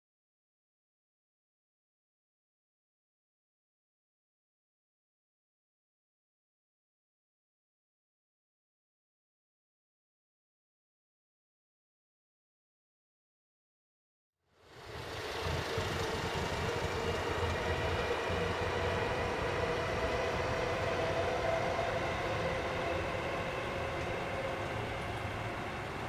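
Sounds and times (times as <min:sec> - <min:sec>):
electric train rumbling: 0:14.5 - 0:26.0.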